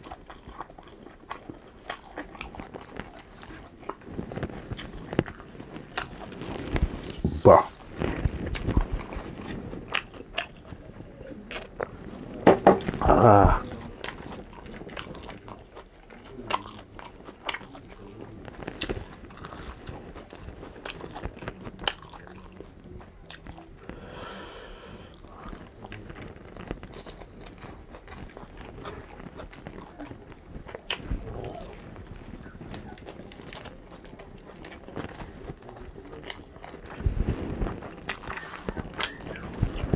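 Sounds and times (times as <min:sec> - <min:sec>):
chewing and biting: 0:00.0 - 0:24.0, 0:25.1 - 0:39.9
mouth clicks and smacks: 0:36.3 - 0:39.9.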